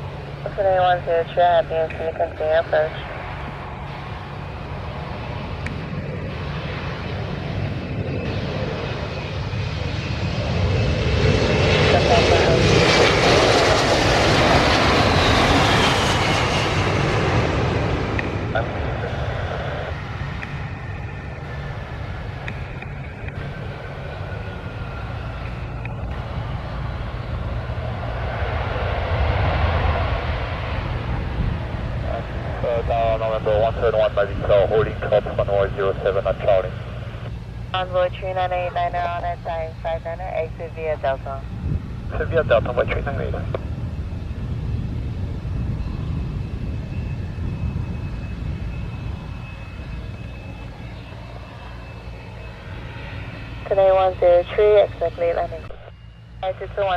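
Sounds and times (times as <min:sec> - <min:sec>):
aircraft engine whine: 0:00.0 - 0:56.9.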